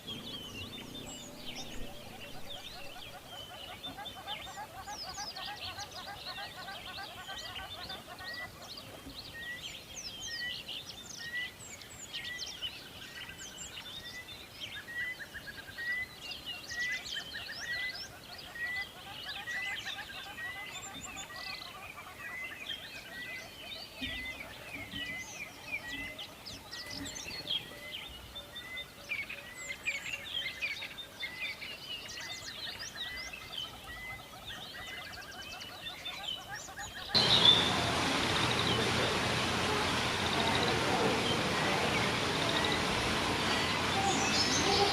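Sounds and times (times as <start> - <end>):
birds chirping and calling: 0.0 - 44.9
steady hiss: 37.2 - 44.9.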